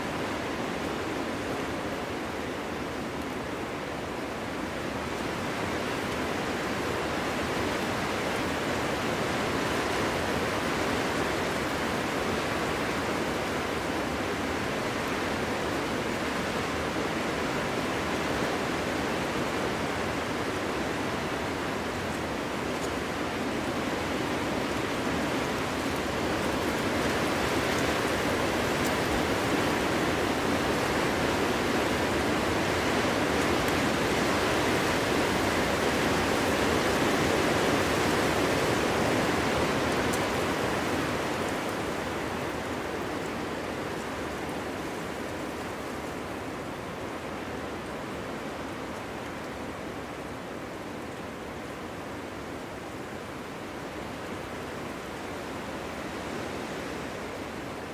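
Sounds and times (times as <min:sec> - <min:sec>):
strong wind through trees: 0:00.0 - 0:57.9.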